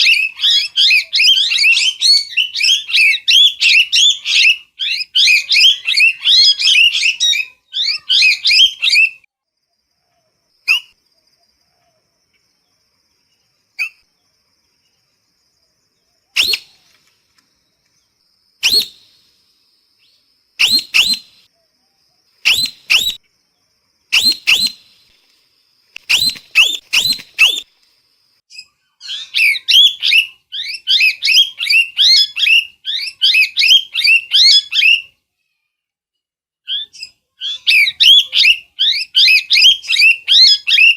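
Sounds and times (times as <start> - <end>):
parrot calling and chirping: 0.0 - 9.2, 18.6 - 19.1, 20.6 - 21.5, 22.4 - 23.2, 24.1 - 24.9, 26.0 - 27.6, 28.5 - 35.1, 36.7 - 40.9.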